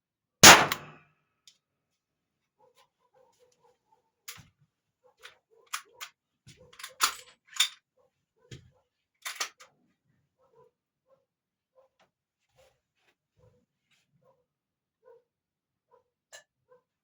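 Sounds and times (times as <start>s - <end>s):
pistol metallic clicks: 0.4s - 1.0s.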